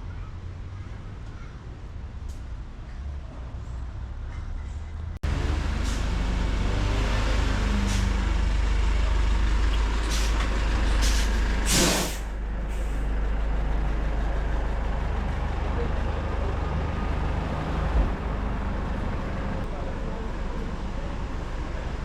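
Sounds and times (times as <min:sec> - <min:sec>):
heavy vehicle engine rumbling: 0:00.0 - 0:22.0
air brake hiss: 0:10.1 - 0:10.4, 0:11.0 - 0:13.0.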